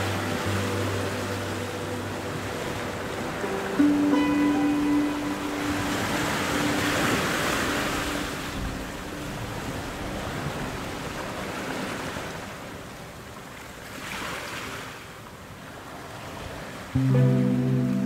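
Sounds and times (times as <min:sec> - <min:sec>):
soft music: 0:00.0 - 0:11.2, 0:17.0 - 0:18.0
ocean surf washing in: 0:00.0 - 0:18.0.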